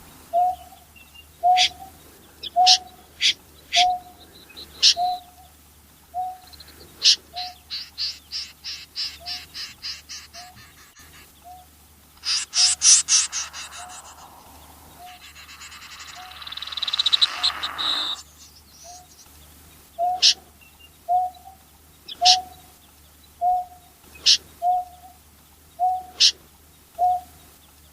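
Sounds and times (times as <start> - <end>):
snipe calls: 1.4 - 5.4, 6.2 - 19.3.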